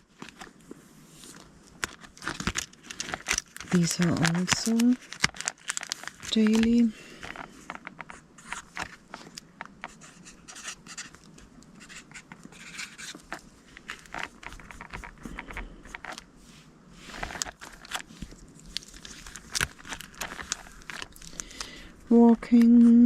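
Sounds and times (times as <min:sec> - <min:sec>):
cards rustling and tapping: 0:00.1 - 0:16.3, 0:17.1 - 0:21.9
marker scratching on paper: 0:09.9 - 0:11.1.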